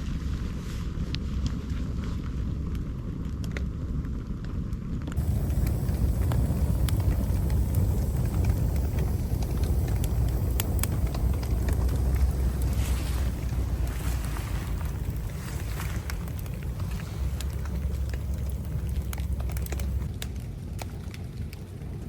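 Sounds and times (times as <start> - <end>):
campfire crackling and popping: 1.2 - 22.0.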